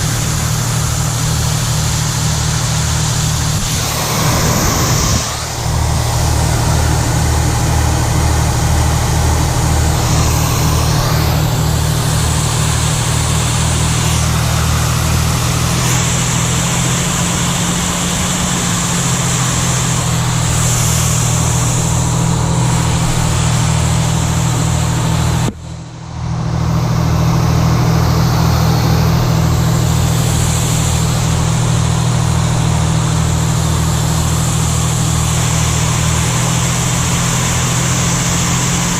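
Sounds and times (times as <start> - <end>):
diesel engine rumbling: 0.0 - 38.9.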